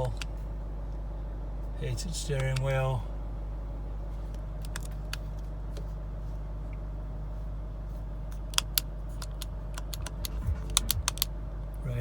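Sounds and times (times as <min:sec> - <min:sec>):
steady low hum: 0:00.0 - 0:12.0
switch clicks: 0:08.4 - 0:11.3.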